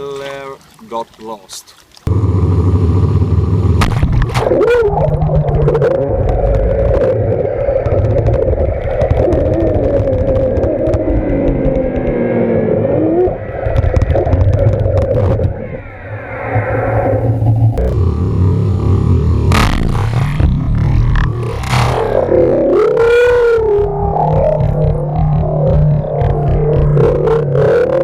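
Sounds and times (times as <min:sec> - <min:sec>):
drone propellers humming: 0:02.1 - 0:28.0
heavy low rumble: 0:02.1 - 0:28.0
rising whine: 0:02.1 - 0:28.0.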